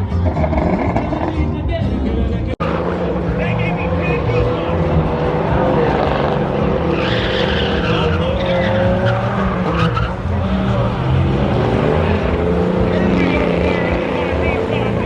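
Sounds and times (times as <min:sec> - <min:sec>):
tire squeal: 0:03.5 - 0:15.0.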